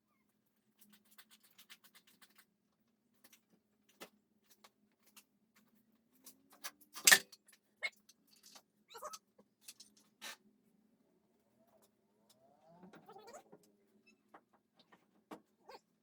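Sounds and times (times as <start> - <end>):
metallic clicks of tools: 7.0 - 7.4.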